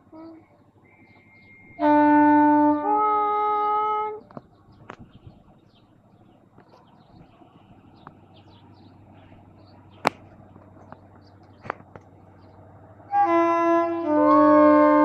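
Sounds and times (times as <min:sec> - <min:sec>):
locomotive multi-tone horn: 0:00.0 - 0:04.3, 0:13.0 - 0:15.0.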